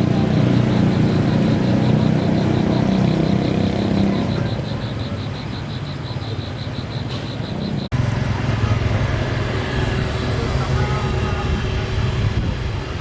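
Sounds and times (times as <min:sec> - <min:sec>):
vehicle engine running: 0:00.0 - 0:05.0, 0:07.4 - 0:13.0.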